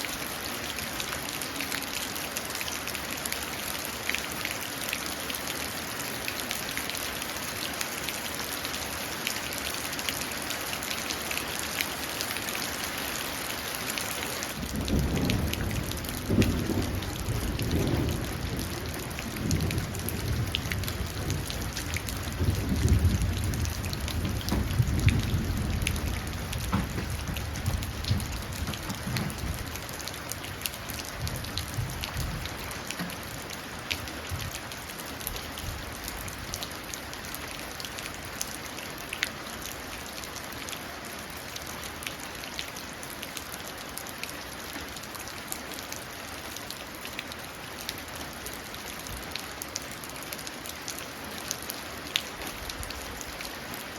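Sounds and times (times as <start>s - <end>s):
rain pattering into a puddle: 0.0s - 53.9s
low thunder rumbling: 14.6s - 30.0s, 31.0s - 32.7s.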